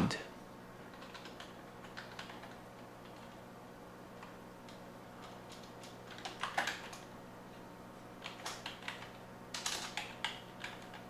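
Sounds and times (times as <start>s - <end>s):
typing on computer keyboard: 0.9s - 3.4s, 4.2s - 7.1s, 8.2s - 11.0s.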